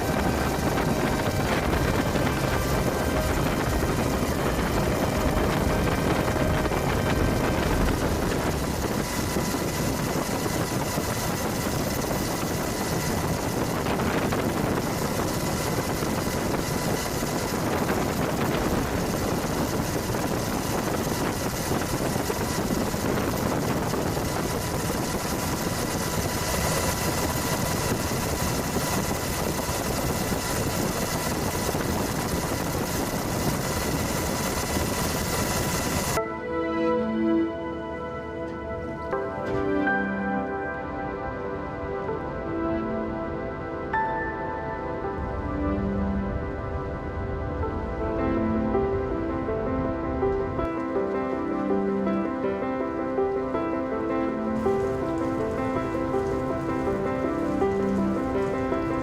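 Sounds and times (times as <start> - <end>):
engine noise: 0.0 - 59.0
faint steady tones: 0.0 - 59.0
rushing hiss: 54.6 - 59.0.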